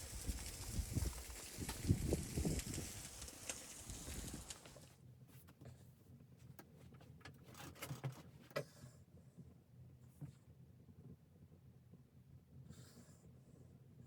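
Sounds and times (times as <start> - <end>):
hiss: 0.0 - 4.8
faint clicks and knocks: 0.2 - 5.7.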